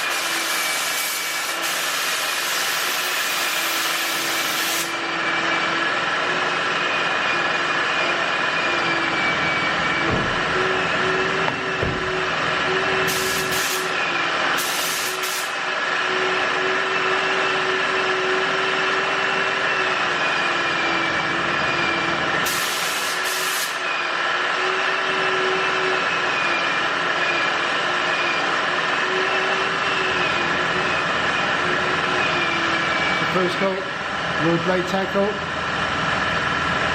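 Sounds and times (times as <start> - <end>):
spray gun hissing: 0.0 - 4.9, 13.1 - 13.9, 14.6 - 15.6, 22.5 - 23.8.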